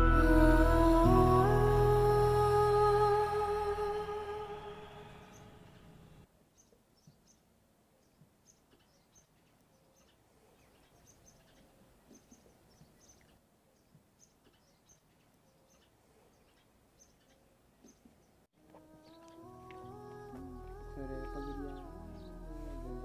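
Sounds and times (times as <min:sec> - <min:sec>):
hummed music: 0:00.0 - 0:05.6, 0:18.6 - 0:23.0
small birds chirping: 0:05.0 - 0:23.0.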